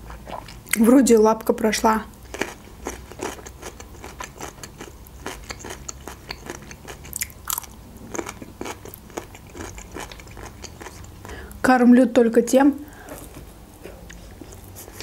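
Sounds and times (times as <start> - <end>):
chewing with wet mouth clicks: 2.3 - 11.6.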